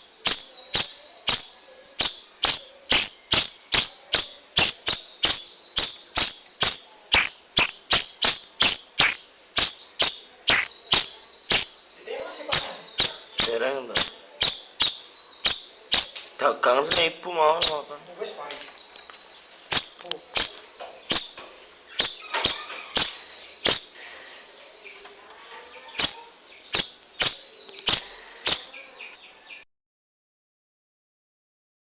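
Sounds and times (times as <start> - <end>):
bird's sharp high call: 0.0 - 11.9
steady high hiss: 0.0 - 18.6, 19.2 - 29.4
faint high chirps: 0.0 - 29.7
songbird sharp clicks: 6.6 - 11.8.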